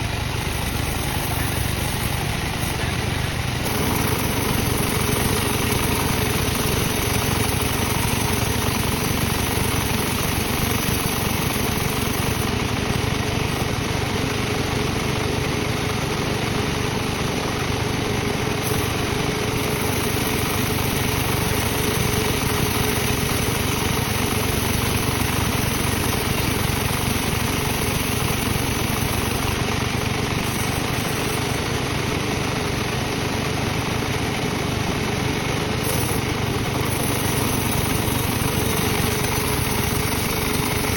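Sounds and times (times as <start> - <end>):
sawmill machinery drone: 0.0 - 40.9.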